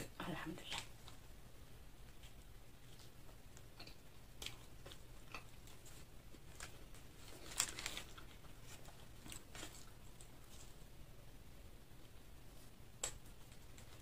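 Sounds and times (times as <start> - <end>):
chewing and crunching food: 2.0 - 11.0.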